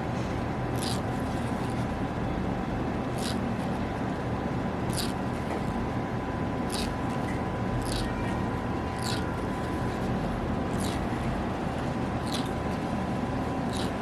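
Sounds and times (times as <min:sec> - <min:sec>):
steady background hum: 0:00.0 - 0:14.0
thread zipping through hairs: 0:03.2 - 0:03.4, 0:13.7 - 0:13.9.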